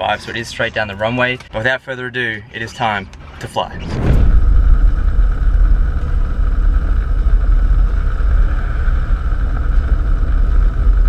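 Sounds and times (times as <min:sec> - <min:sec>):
plane piston engine idling: 0:04.4 - 0:11.0.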